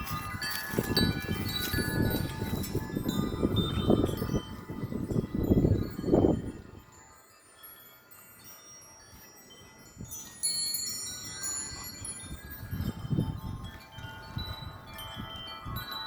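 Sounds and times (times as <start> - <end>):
low rumble of wind: 0.0 - 7.0, 11.1 - 16.0
wind chimes ringing: 0.0 - 16.0.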